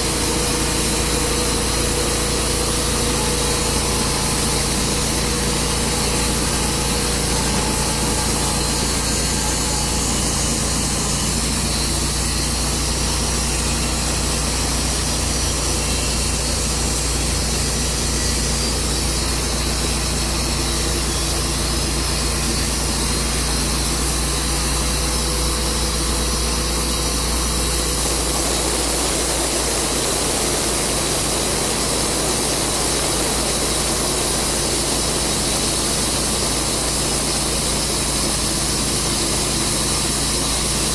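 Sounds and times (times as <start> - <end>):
sawmill engine and saw drone: 0.0 - 40.9.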